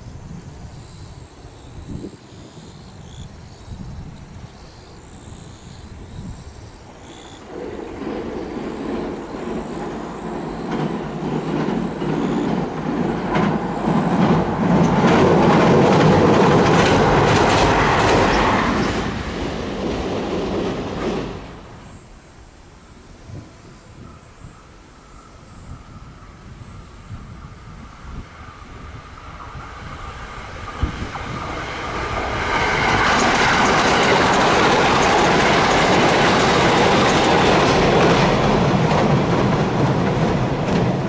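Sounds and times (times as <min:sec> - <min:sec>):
electric train crossing a steel bridge: 0:00.0 - 0:41.0
wheels clacking over rail joints: 0:07.0 - 0:22.0, 0:29.4 - 0:41.0.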